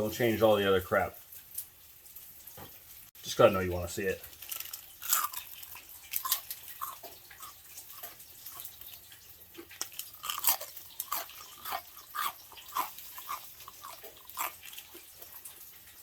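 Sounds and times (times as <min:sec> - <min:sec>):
chewing crispy fried chicken: 0:04.2 - 0:16.0.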